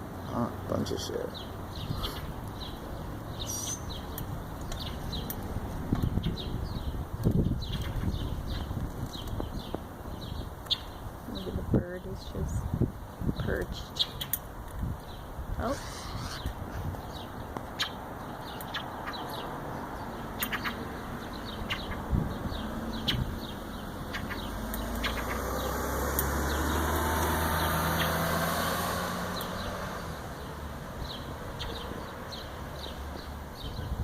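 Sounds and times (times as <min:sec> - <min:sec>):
high bird chirps: 0:01.3 - 0:05.4, 0:15.1 - 0:28.3
vehicle engine passing: 0:22.5 - 0:33.1.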